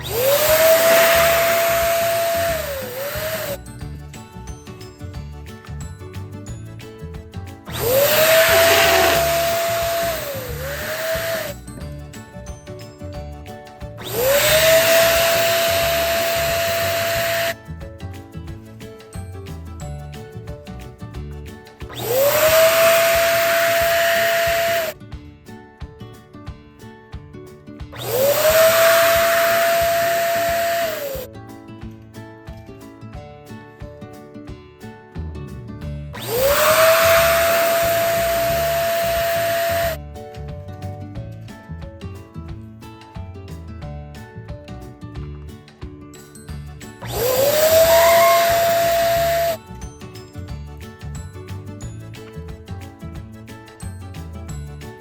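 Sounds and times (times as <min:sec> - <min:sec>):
electric balloon pump running: 0:00.0 - 0:04.0, 0:07.7 - 0:11.8, 0:14.0 - 0:17.6, 0:21.9 - 0:25.0, 0:28.0 - 0:31.3, 0:36.2 - 0:40.0, 0:47.0 - 0:49.8
background music: 0:00.0 - 0:55.0.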